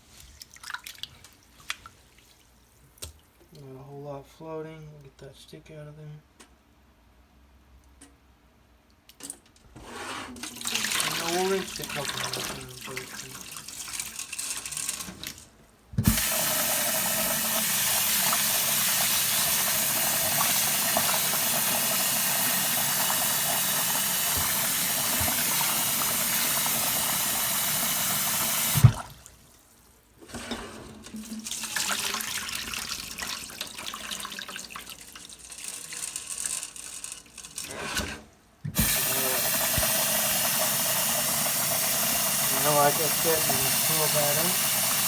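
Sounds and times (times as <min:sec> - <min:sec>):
faucet shutting off clunk: 0:16.0 - 0:29.1, 0:38.7 - 0:45.0
faucet running into jar: 0:31.2 - 0:37.7, 0:38.8 - 0:45.0.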